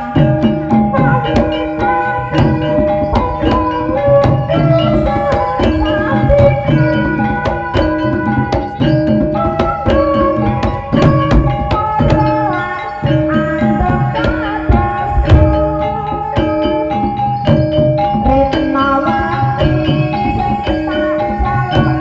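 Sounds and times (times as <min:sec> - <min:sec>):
hand drum strokes: 0:00.0 - 0:22.0
pitched percussion pattern: 0:00.0 - 0:22.0.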